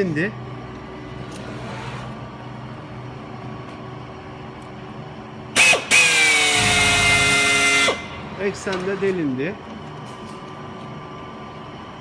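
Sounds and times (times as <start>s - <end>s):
low steady hum: 0.0s - 12.0s
drill motor whine: 5.6s - 8.2s.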